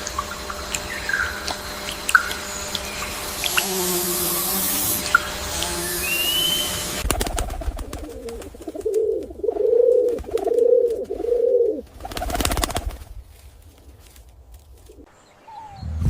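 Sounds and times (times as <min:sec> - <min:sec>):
bird calling with falling notes: 0:00.0 - 0:03.7, 0:05.0 - 0:07.0, 0:15.0 - 0:16.0.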